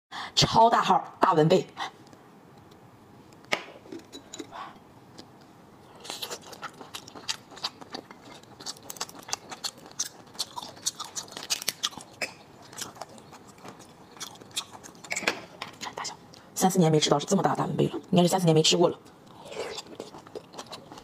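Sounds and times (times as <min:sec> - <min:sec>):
person chewing wetly: 0:04.4 - 0:15.2, 0:19.2 - 0:21.0.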